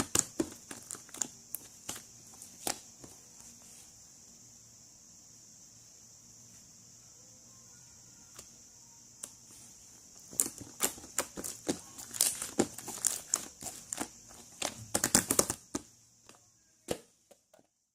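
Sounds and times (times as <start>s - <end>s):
crinkling handling noises: 0.0s - 4.0s, 9.2s - 16.4s
steady high hiss: 0.0s - 17.9s.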